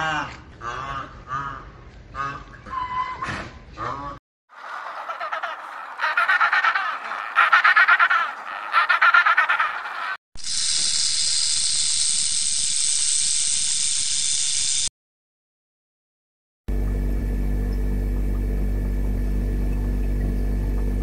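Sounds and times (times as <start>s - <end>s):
penguin braying: 3.8s - 10.2s
rattlesnake rattle buzzing: 10.4s - 14.9s.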